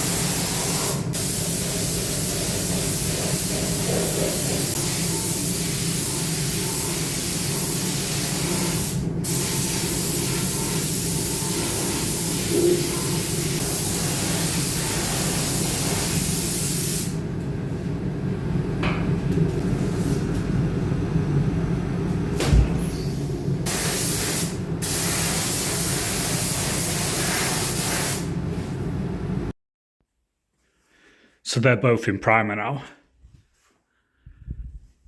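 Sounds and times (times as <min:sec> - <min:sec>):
spray can hissing: 0:00.0 - 0:17.1, 0:23.7 - 0:28.3.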